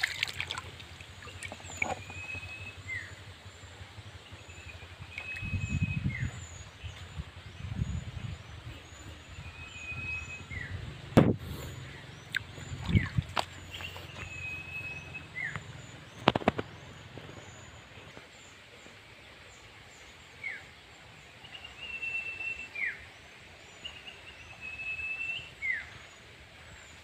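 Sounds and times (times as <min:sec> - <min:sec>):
bird singing whistled notes: 0:01.7 - 0:03.2, 0:04.4 - 0:10.8, 0:12.3 - 0:16.5, 0:21.4 - 0:23.1, 0:23.8 - 0:26.0
faint high chirps: 0:04.6 - 0:06.4.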